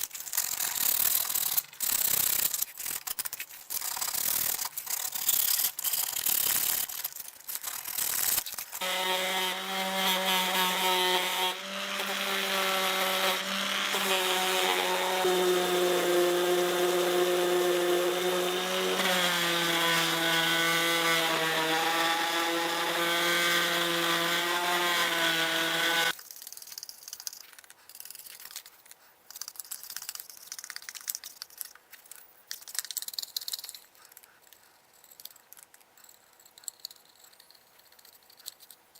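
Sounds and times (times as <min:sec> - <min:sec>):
power tool motor humming: 0:08.8 - 0:26.1.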